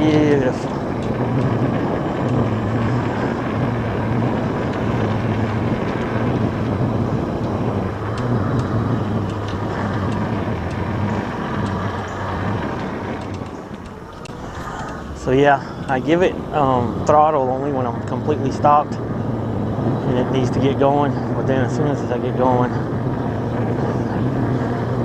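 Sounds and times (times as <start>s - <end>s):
light clicks and ticks: 0.0s - 16.0s
air rushing past microphone: 0.0s - 25.0s.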